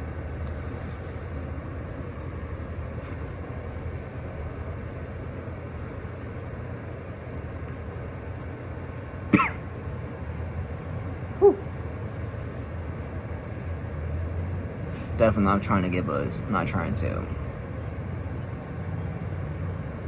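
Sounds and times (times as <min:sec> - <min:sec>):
person coughing: 0:09.3 - 0:09.6.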